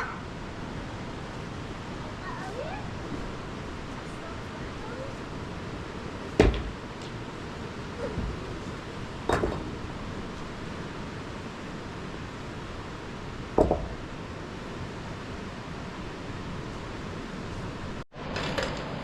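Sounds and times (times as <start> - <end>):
sharp knocks: 6.4 - 6.8, 13.6 - 14.0.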